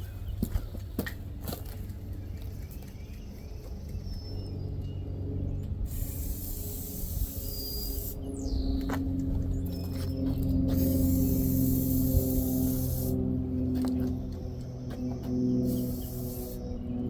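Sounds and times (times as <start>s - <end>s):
aerosol can spraying: 5.9s - 8.2s, 10.7s - 13.2s, 15.6s - 16.6s.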